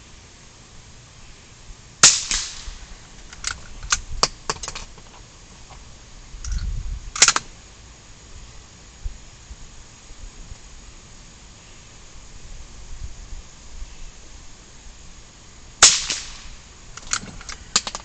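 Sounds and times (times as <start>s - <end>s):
rifle shots with echo: 2.0s - 2.8s, 15.8s - 16.6s.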